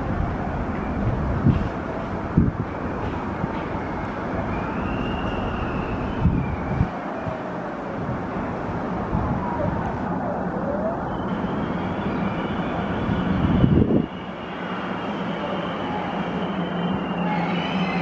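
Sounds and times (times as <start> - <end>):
wheels squealing: 2.7 - 6.9, 11.1 - 18.0.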